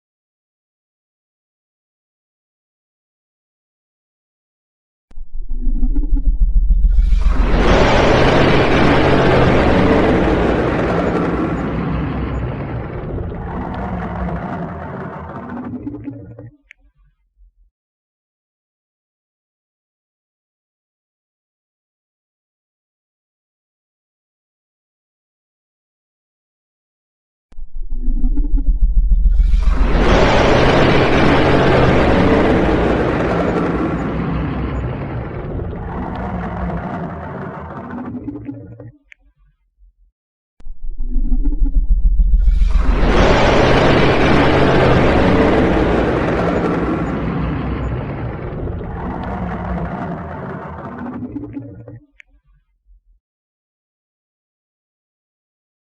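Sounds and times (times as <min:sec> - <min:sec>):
deep rumble: 0:05.1 - 0:16.7, 0:27.6 - 0:39.2, 0:39.8 - 0:52.2
harsh rumbling dragon roar: 0:35.0 - 0:37.9, 0:42.7 - 0:51.1.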